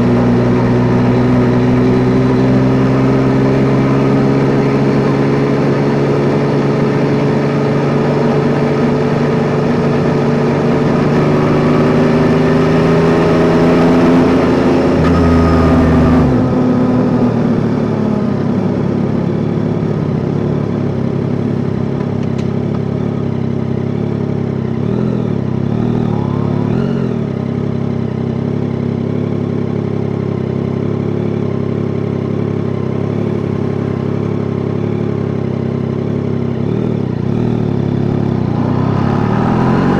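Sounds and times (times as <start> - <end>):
motorcycle engine running: 0.0 - 39.9
road noise: 0.0 - 39.9.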